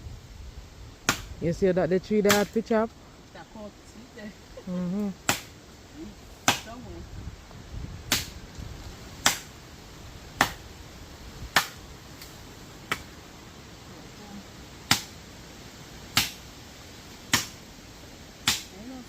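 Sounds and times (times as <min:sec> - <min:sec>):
blade chopping into tree: 0:01.0 - 0:01.3, 0:02.2 - 0:02.6, 0:05.2 - 0:05.5, 0:06.4 - 0:06.8, 0:08.1 - 0:08.4, 0:09.2 - 0:09.5, 0:10.4 - 0:10.6, 0:11.5 - 0:11.8, 0:12.9 - 0:13.1, 0:14.8 - 0:15.2, 0:16.1 - 0:16.5, 0:17.3 - 0:17.6, 0:18.4 - 0:18.8.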